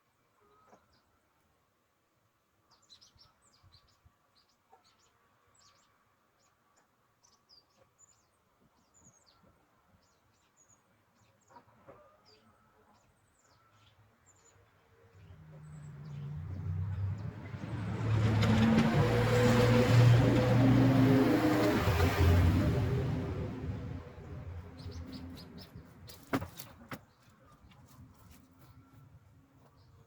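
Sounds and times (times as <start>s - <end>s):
small birds chirping: 24.3s - 29.0s.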